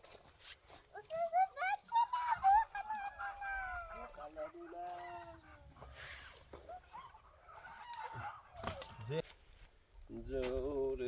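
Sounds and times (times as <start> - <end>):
chickens clucking and calling: 1.0 - 9.3.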